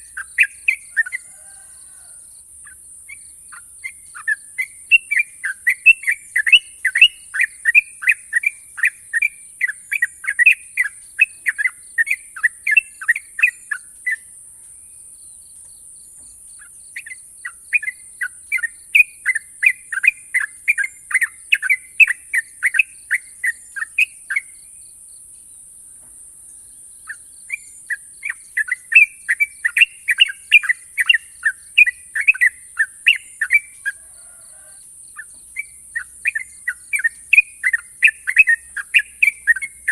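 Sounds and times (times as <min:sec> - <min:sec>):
steady high-pitched hiss: 0:00.0 - 0:39.9
bird singing quick sharp chirps: 0:03.1 - 0:14.3, 0:27.0 - 0:34.0.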